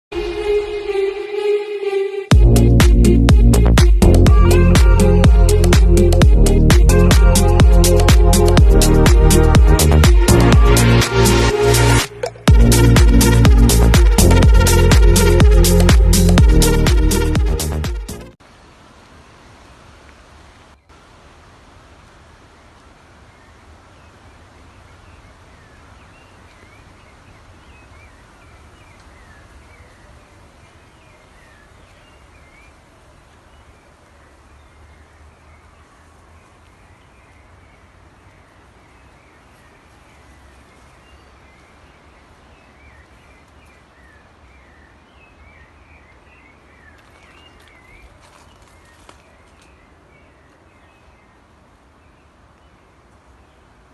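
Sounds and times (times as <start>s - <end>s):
steady low rumble: 2.3s - 18.4s
small birds chirping: 23.2s - 53.9s.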